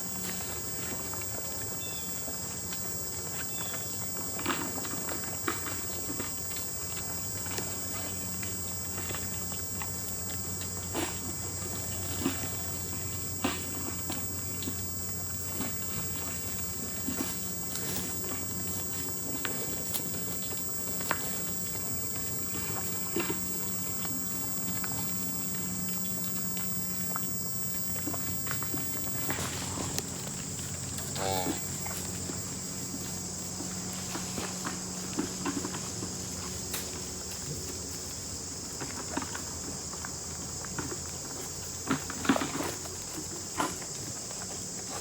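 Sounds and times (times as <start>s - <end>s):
insect chorus: 0.0s - 45.0s
low steady hum: 0.0s - 45.0s.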